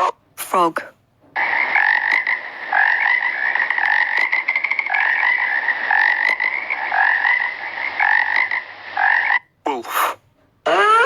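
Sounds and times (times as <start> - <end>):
frog rattling trill: 1.4 - 9.5
frog croaking: 1.4 - 11.0.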